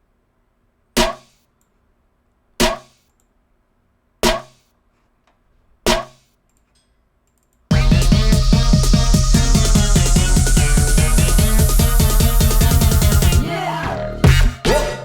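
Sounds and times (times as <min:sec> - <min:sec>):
electronic snare drum hits: 0:01.0 - 0:01.4, 0:02.6 - 0:03.0, 0:04.2 - 0:04.6, 0:05.9 - 0:06.2, 0:07.7 - 0:13.4, 0:14.2 - 0:14.8.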